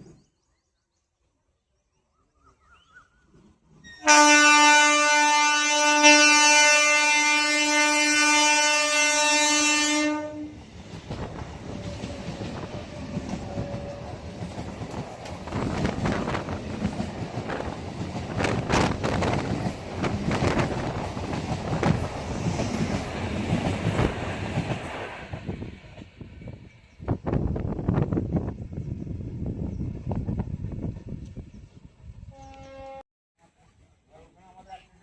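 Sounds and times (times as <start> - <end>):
locomotive horn blast: 4.0 - 10.6, 32.3 - 33.0
train wheels clattering over rails: 10.6 - 27.3.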